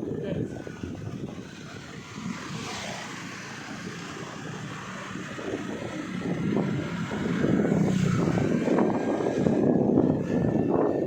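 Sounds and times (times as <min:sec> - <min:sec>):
vehicle engine hum: 0:00.0 - 0:11.0
wind buffeting microphone: 0:00.0 - 0:11.0.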